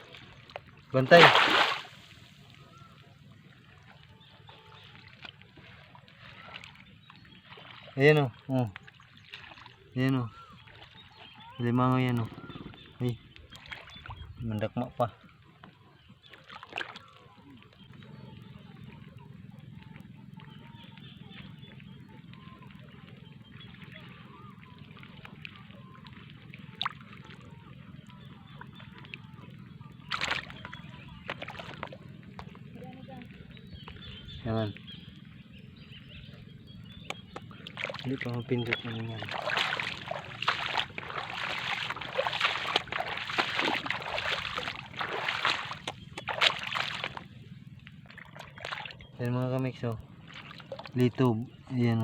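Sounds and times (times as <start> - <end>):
water splash: 0.0 - 2.5, 16.3 - 17.2, 24.8 - 28.1, 30.0 - 32.6, 37.1 - 47.4, 48.0 - 49.1, 49.8 - 51.2
squelches of hands in mud: 0.0 - 3.0, 13.4 - 14.2, 16.2 - 17.2, 30.0 - 32.6, 37.1 - 51.2
water sloshing: 0.0 - 52.0.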